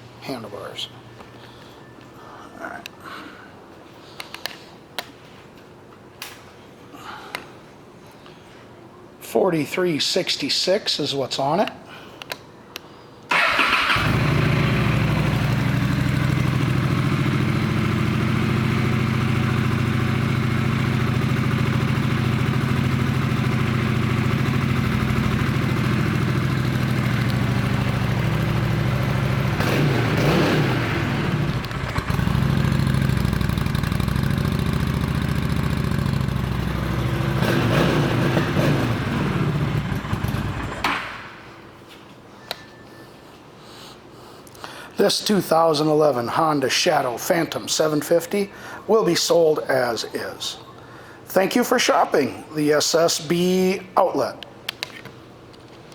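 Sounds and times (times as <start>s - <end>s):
motorcycle engine revving: 13.3s - 40.8s
motorcycle engine starting and idling: 13.3s - 41.6s.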